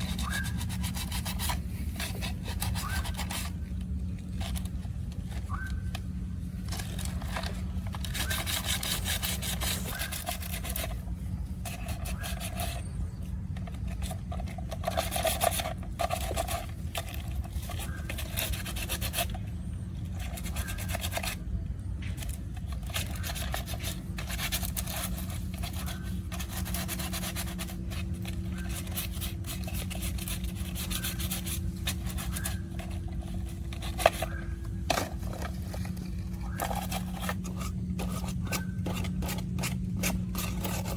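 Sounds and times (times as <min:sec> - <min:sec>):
steady low hum: 0:00.0 - 0:40.9
abrasive scraping on hard surface: 0:22.9 - 0:40.9.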